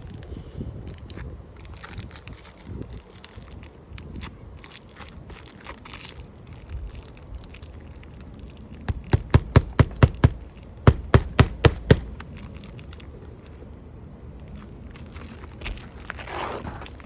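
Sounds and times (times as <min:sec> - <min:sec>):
hammer striking roofing nails: 0:08.9 - 0:12.3.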